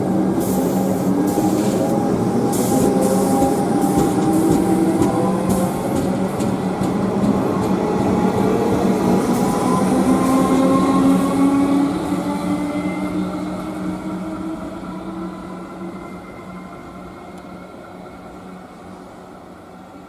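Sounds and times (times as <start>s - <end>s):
train rumble: 0.0s - 15.9s.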